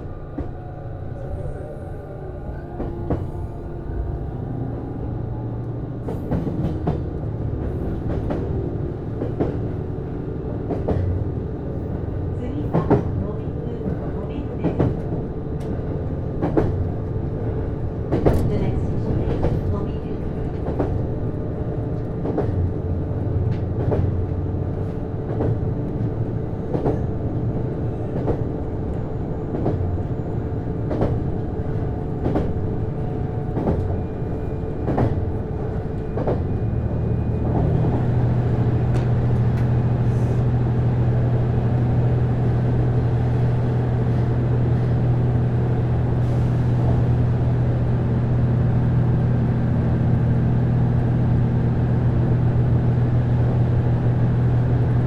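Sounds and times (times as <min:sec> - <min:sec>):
diesel engine drone: 0:00.0 - 0:19.3.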